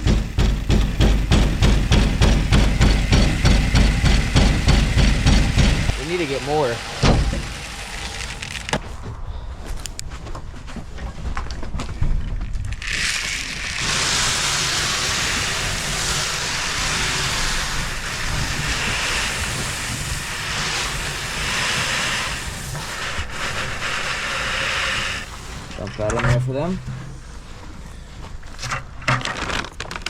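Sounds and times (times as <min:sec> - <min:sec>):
loud rushing hiss: 0:00.0 - 0:08.9, 0:12.9 - 0:25.8
tractor engine rumbling: 0:00.0 - 0:10.4, 0:12.8 - 0:30.0.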